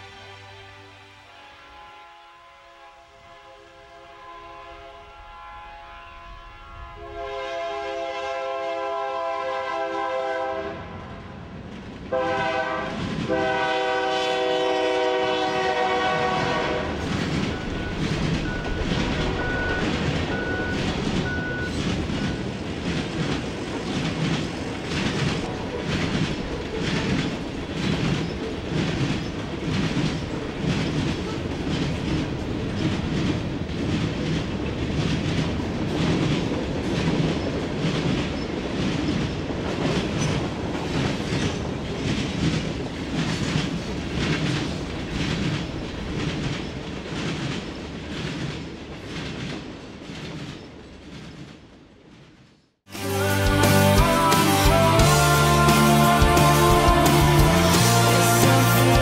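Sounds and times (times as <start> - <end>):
train low rumble: 1.2 - 59.0
train wheels clacking on rails: 11.7 - 51.8.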